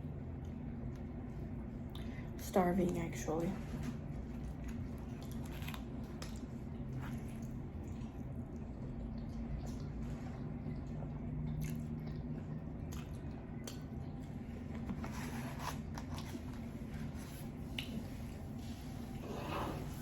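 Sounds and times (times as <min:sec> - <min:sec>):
steady low hum: 0:00.0 - 0:20.0
chewing and slurping: 0:04.2 - 0:14.4.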